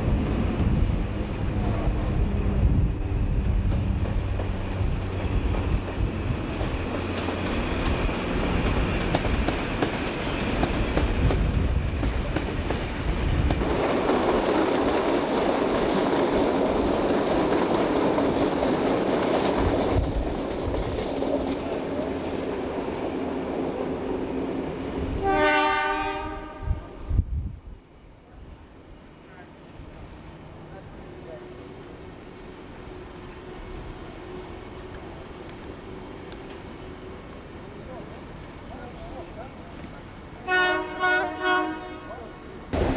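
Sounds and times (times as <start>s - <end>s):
train rumbling on rails: 0.0s - 42.9s
locomotive horn blast: 25.2s - 27.1s, 40.4s - 42.5s.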